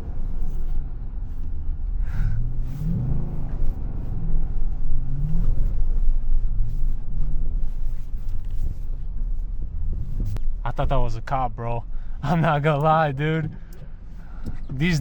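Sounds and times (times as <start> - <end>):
truck engine revving: 2.2 - 6.1.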